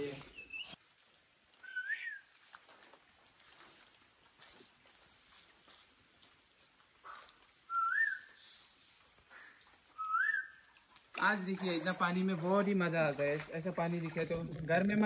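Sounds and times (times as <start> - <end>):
bird whistled call: 0.3 - 0.8, 1.6 - 2.3, 7.1 - 8.6, 9.4 - 10.7.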